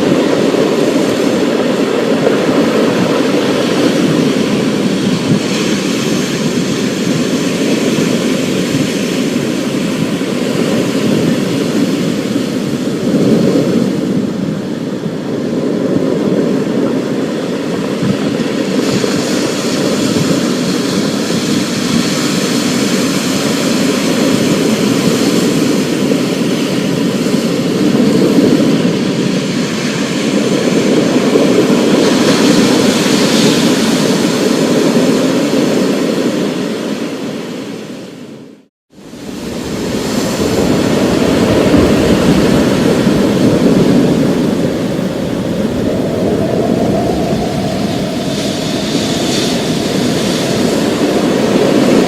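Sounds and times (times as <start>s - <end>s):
thunder rumbling: 39.0s - 52.0s
rain hiss: 39.7s - 51.2s.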